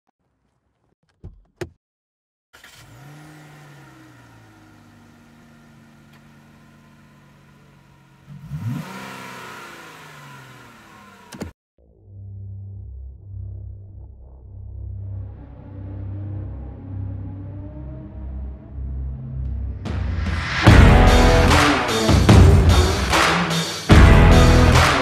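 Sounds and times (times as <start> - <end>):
car engine idling and revving: 2.6 - 11.6, 20.7 - 25.0
music: 11.8 - 25.0.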